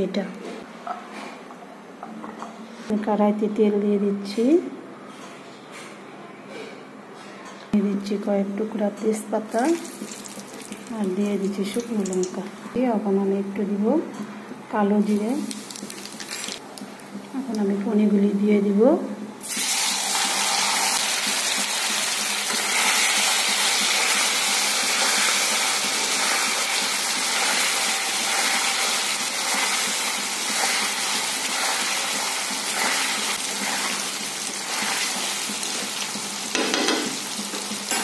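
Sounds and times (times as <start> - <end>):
food sizzling in hot oil: 9.6 - 12.4, 15.2 - 16.4, 19.4 - 38.0.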